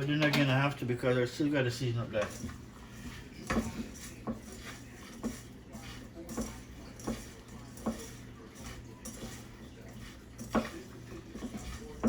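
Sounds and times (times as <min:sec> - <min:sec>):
kitchenware clinking and knocking: 0:00.0 - 0:00.6.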